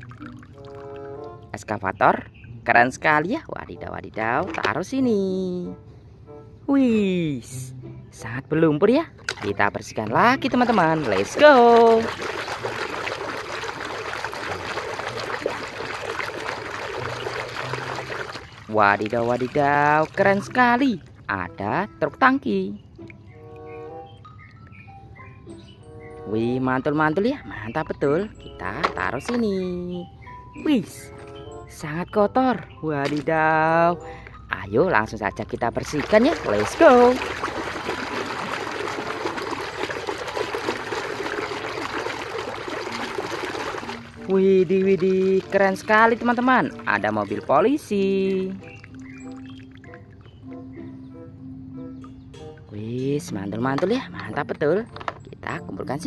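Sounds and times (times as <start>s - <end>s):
water running and splashing: 0.0s - 1.5s, 9.2s - 21.2s, 35.8s - 50.5s.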